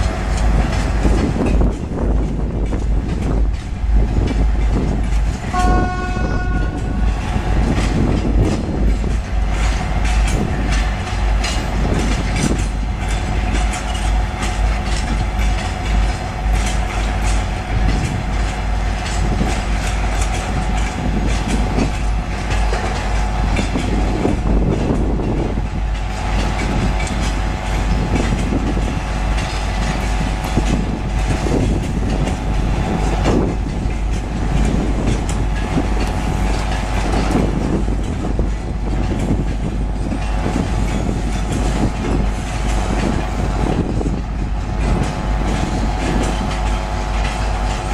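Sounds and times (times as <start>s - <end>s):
train rumble: 0.0s - 47.9s
wheels clicking over rail joints: 0.0s - 47.9s
train horn blast: 5.5s - 7.2s.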